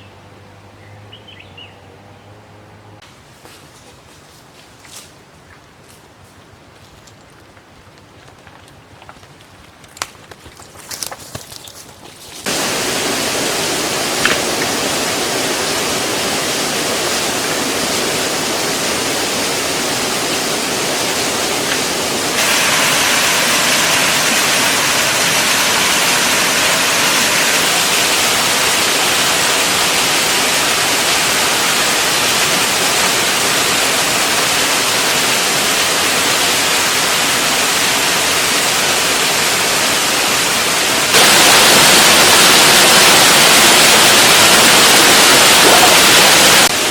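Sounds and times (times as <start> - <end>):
falling water rushing: 12.4 - 46.9.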